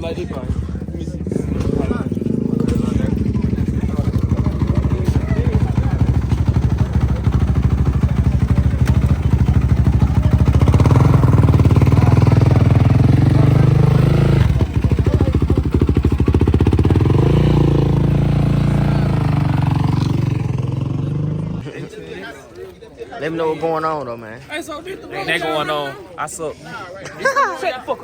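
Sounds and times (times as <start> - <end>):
dirt bike engine revving: 0.8 - 21.6.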